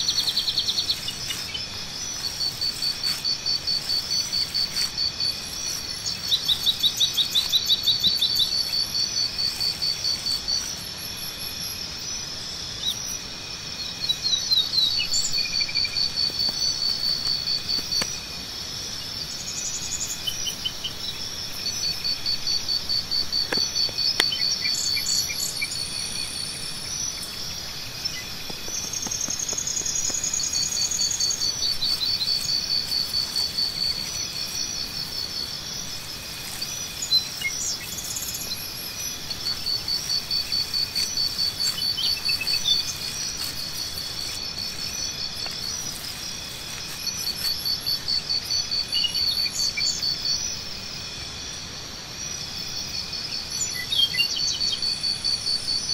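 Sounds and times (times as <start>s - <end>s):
insects chirping in trills: 0.0s - 55.9s.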